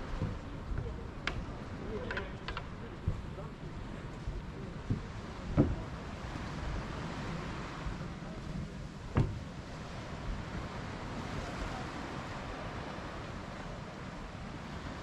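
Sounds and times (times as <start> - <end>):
sea waves washing: 0.0 - 15.0
wind on microphone: 0.0 - 15.0
short sharp thumps: 9.2 - 9.4.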